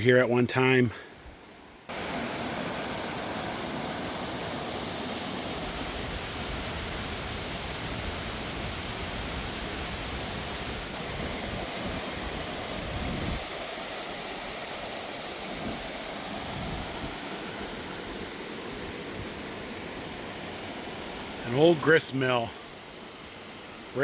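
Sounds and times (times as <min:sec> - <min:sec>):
mountain stream rushing: 0:01.8 - 0:24.0.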